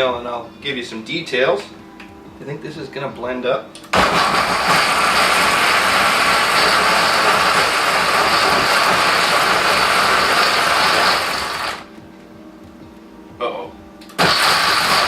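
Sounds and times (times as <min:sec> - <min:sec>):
blender running: 0:04.0 - 0:11.9, 0:14.1 - 0:15.0.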